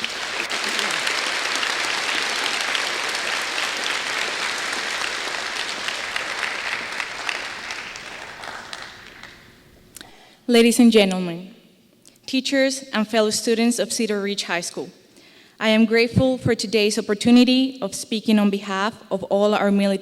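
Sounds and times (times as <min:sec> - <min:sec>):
crowd applauding: 0:00.0 - 0:09.7.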